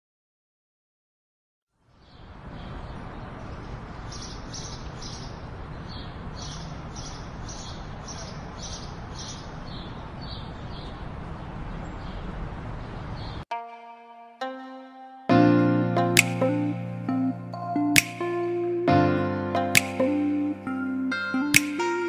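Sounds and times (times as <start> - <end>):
bird chirping: 1.9 - 13.4.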